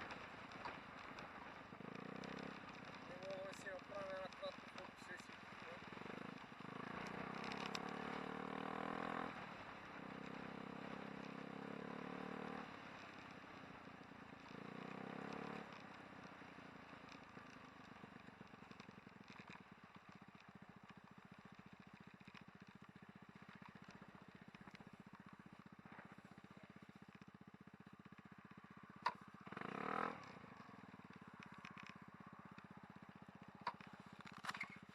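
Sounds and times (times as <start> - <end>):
small engine running: 0.0 - 13.3
short clatter: 33.6 - 34.9.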